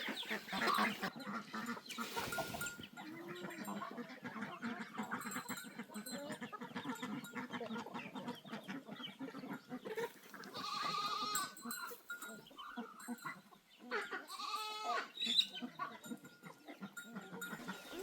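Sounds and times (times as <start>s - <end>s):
farmyard clutter: 0.0s - 18.0s
goat bleating: 10.5s - 11.7s, 14.2s - 15.2s.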